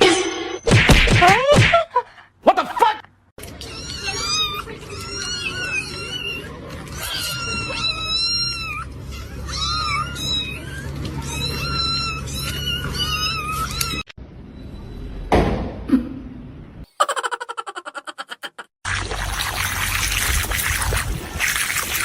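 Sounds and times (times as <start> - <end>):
cat meowing: 3.6 - 14.0.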